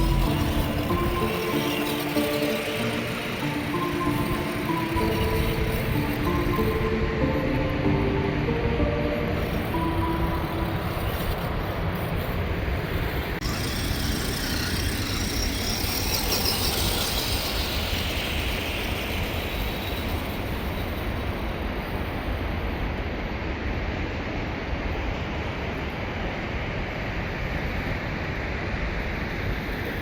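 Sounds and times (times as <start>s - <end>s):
toy car drivetrain rumbling: 0.0s - 7.6s, 9.4s - 20.5s
high whine falling in pitch: 0.0s - 12.4s.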